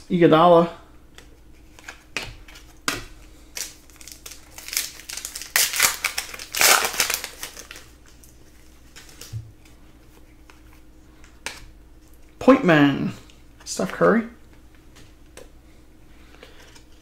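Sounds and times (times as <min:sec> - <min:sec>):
card pack wrapper crinkling: 0:01.7 - 0:09.4.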